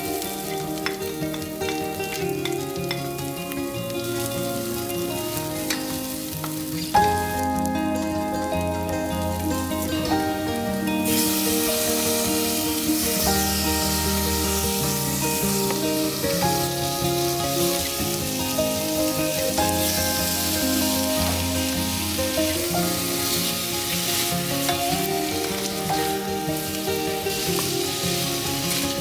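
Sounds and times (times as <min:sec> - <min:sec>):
background music: 0:00.0 - 0:29.0
chicken sizzling in a pot: 0:00.0 - 0:29.0.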